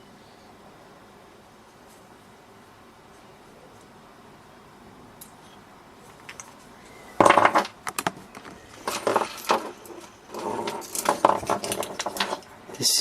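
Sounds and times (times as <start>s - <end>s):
plastic and metal parts clattering: 7.2s - 12.5s.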